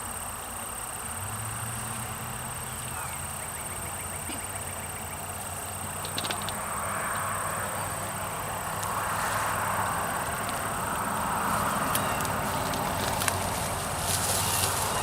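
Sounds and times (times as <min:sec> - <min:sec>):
steady high-pitched buzz: 0:00.0 - 0:15.0
sharp clicks: 0:05.4 - 0:07.3.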